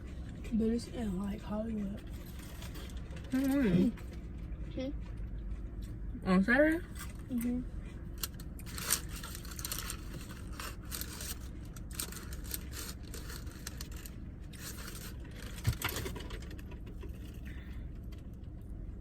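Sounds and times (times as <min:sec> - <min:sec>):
food packaging crinkling: 0:08.2 - 0:17.4.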